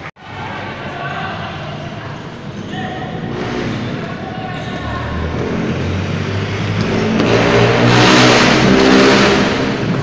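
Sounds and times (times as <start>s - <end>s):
car engine passing: 3.1s - 10.0s.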